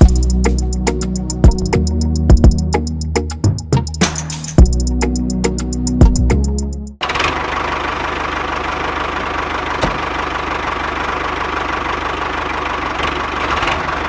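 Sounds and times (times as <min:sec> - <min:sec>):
engine chugging: 0:04.6 - 0:14.0.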